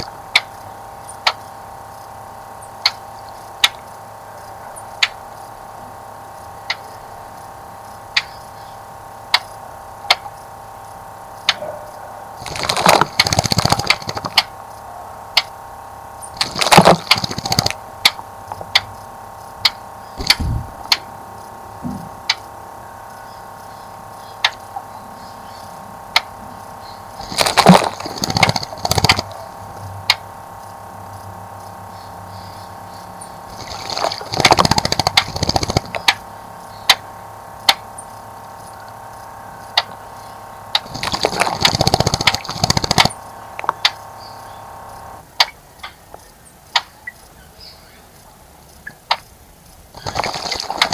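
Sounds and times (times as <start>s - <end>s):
sharp ticks: 0.0s - 2.2s, 2.8s - 5.6s, 6.4s - 8.6s, 9.3s - 11.6s, 12.4s - 21.6s, 22.2s - 24.9s, 25.5s - 47.3s, 48.7s - 50.9s
bird splashing in water: 12.4s - 14.4s, 16.4s - 17.8s, 27.2s - 29.3s, 33.5s - 36.0s, 40.8s - 43.2s, 50.0s - 50.9s.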